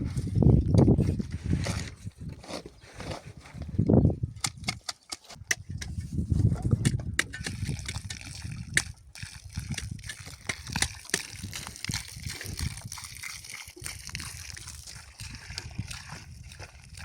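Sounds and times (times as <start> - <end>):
water sloshing and splashing: 5.1 - 17.0.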